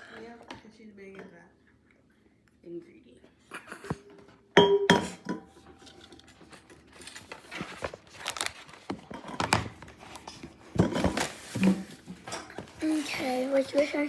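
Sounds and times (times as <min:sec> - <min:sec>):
cardboard packaging rustling: 0:05.8 - 0:14.0.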